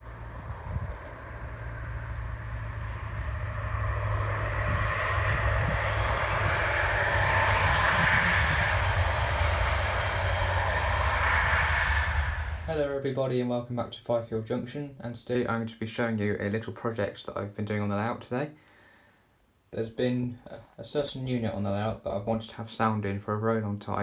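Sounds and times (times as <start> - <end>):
diesel engine sound from small speaker: 0.0 - 12.9
steady low hum: 0.0 - 15.6.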